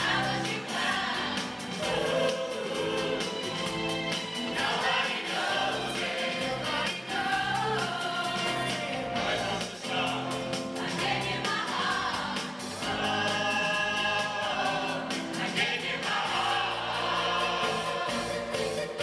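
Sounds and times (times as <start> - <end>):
choir singing pop song: 0.0 - 19.0
instrumental backing with beat: 0.0 - 19.0.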